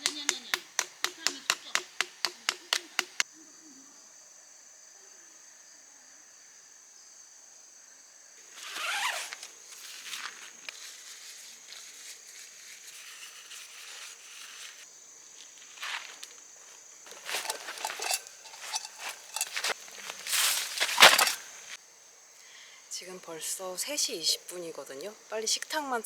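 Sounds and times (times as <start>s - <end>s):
insects trilling: 0.0s - 26.0s
rustling: 8.4s - 21.8s
light clicks and handling noises: 17.1s - 21.8s.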